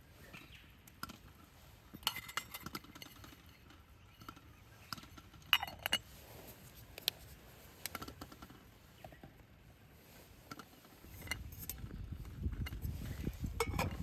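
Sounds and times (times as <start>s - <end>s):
light clicks and taps: 6.7s - 9.4s.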